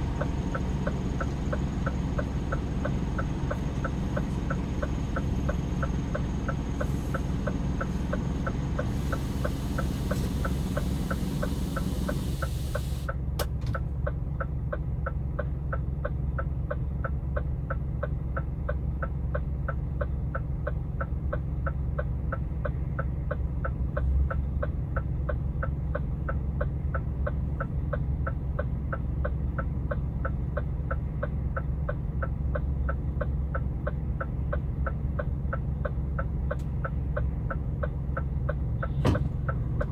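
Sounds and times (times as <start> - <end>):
diesel engine running low: 0.0 - 39.9
turn signal relay ticking: 11.4 - 39.9.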